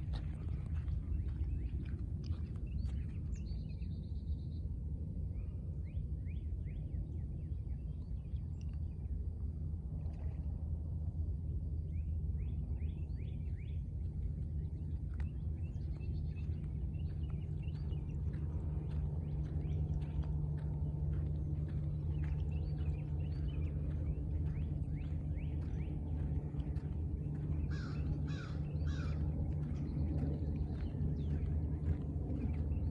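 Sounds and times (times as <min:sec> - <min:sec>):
small songbirds chirping: 0:00.0 - 0:04.7, 0:11.9 - 0:32.9
low rumble: 0:00.0 - 0:32.9.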